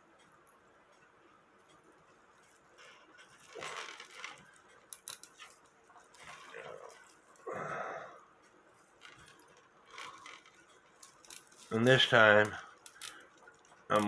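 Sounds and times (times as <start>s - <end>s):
metal clock chain clicks and rustles: 2.3s - 7.4s, 8.8s - 14.0s.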